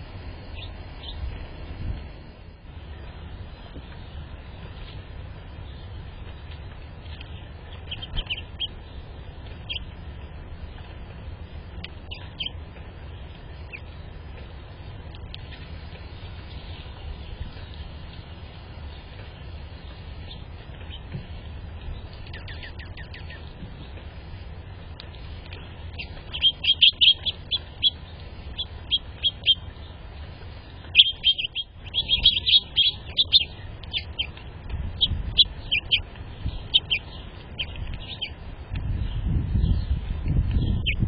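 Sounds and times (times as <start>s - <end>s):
small birds chirping: 0.0s - 1.5s, 2.4s - 41.0s
low steady rumble: 0.0s - 41.0s.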